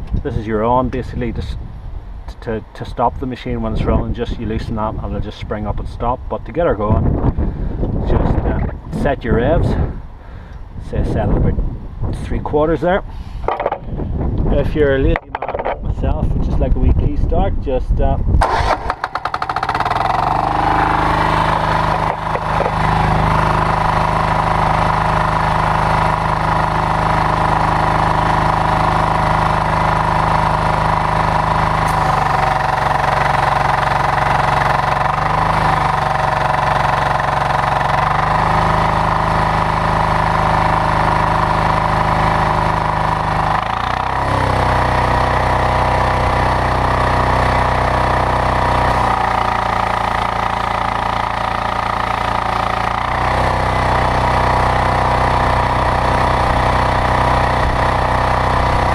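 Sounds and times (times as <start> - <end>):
diesel engine running: 18.4 - 58.9.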